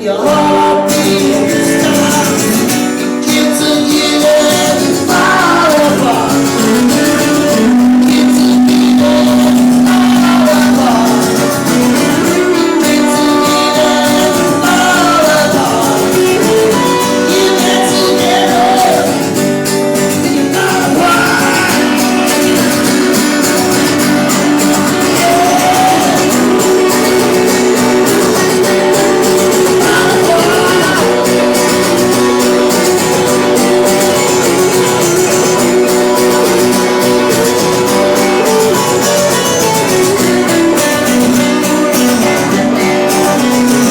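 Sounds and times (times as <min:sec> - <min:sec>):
live band with guitars: 0:00.0 - 0:43.9
higher line bending in pitch: 0:21.2 - 0:42.6.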